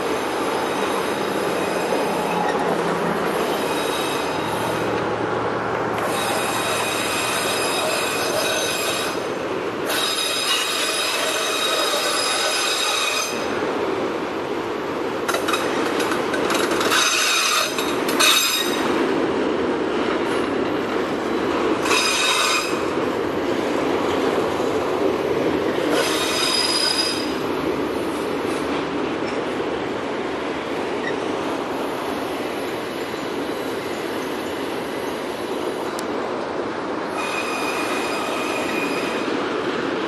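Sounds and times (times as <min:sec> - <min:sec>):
freight train rumbling past: 0:00.0 - 0:40.0
metal wheel squeal: 0:00.3 - 0:02.7, 0:03.4 - 0:04.8, 0:06.0 - 0:09.2, 0:09.9 - 0:13.4, 0:16.8 - 0:18.9, 0:21.8 - 0:22.8, 0:26.0 - 0:27.4, 0:37.1 - 0:39.4.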